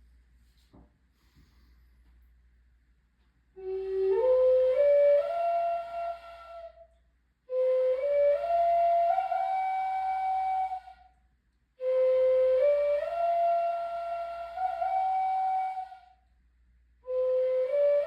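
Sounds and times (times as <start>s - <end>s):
breathy flute melody: 3.6s - 11.2s, 11.8s - 16.3s, 17.0s - 18.0s.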